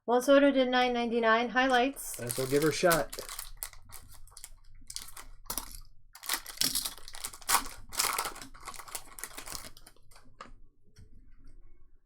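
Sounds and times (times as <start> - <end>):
card pack wrapper crinkling: 1.7 - 10.3
cards rustling and scraping: 1.7 - 10.5.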